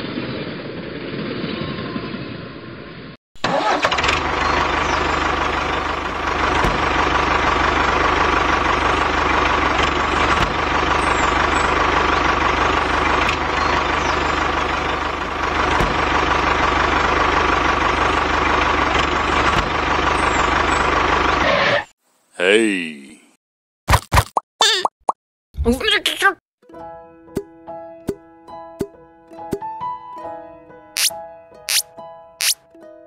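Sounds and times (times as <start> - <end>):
tractor engine idling: 3.4 - 21.4.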